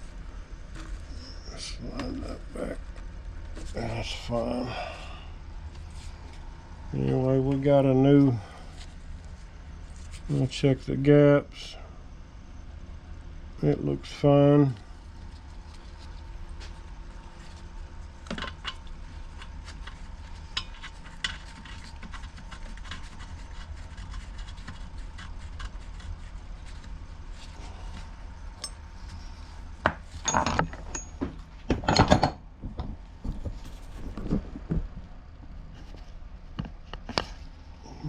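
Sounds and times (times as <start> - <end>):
steady low hum: 0.0 - 38.0
tools clicking and knocking: 29.9 - 32.4
tools clattering: 30.2 - 32.4.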